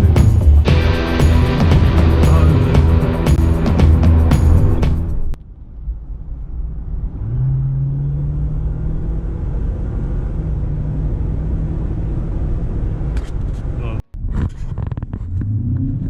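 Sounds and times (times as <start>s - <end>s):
low drone: 0.0s - 7.3s
vehicle driving rumble: 0.0s - 16.0s.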